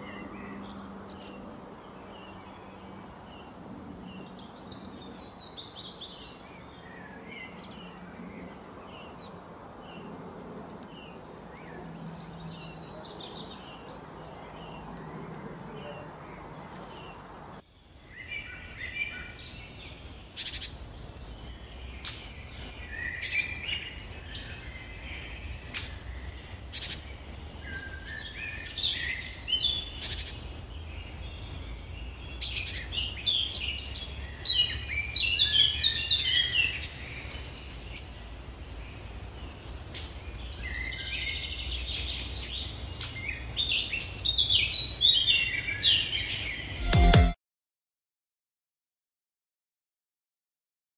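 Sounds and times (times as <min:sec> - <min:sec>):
small songbirds chirping: 0:00.0 - 0:46.9.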